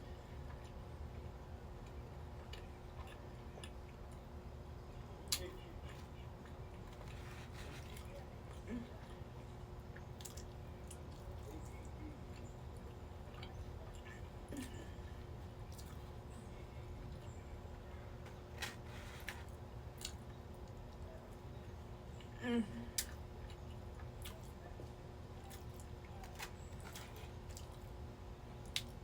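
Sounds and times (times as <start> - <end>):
quiet room hum: 0.0 - 29.0
chewing and mouth smacks: 9.9 - 14.7, 15.6 - 16.2.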